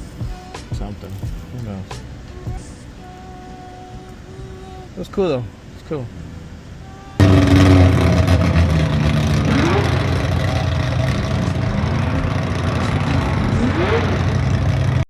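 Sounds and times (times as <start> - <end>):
car engine running loudly: 7.2 - 15.0
short rising sounds: 7.2 - 15.0.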